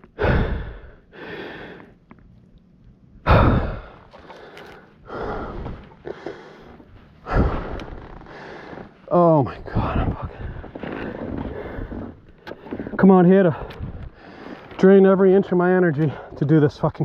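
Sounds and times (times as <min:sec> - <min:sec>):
loud gasping breaths: 0:00.0 - 0:02.0, 0:03.2 - 0:09.0
man breathing hard: 0:00.0 - 0:02.0, 0:03.2 - 0:09.0.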